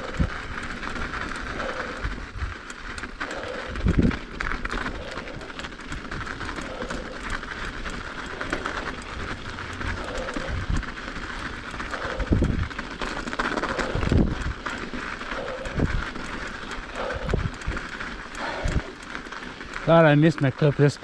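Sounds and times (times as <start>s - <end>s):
bike tyres crunching on snow: 0.0s - 21.0s.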